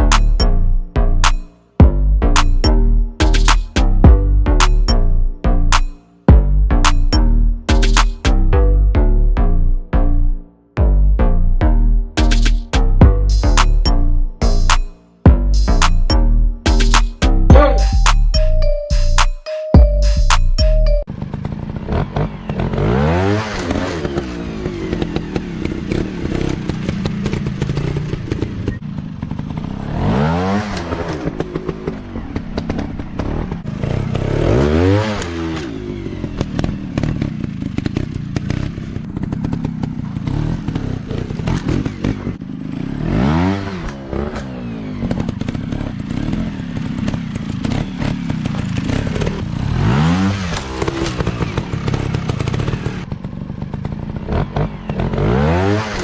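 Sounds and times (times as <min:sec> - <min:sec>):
dirt bike engines revving: 0:21.2 - 0:56.0.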